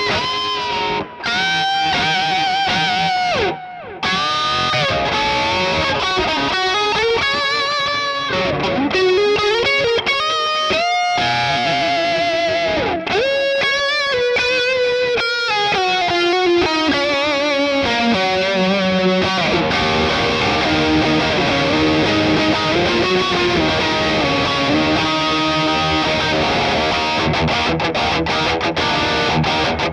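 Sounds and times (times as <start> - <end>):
distorted electric guitar playing: 0.0 - 29.9.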